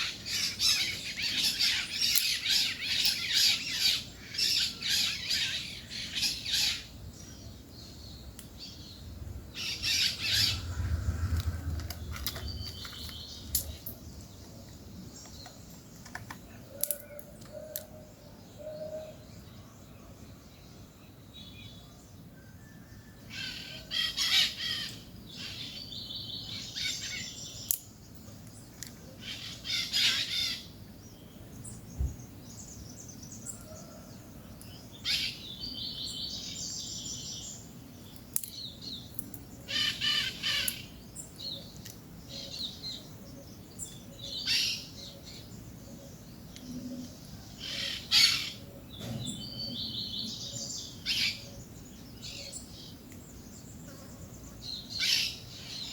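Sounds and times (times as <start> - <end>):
parakeets calling and chattering: 0.0 - 8.0, 8.6 - 17.2, 29.1 - 30.8, 36.3 - 55.9.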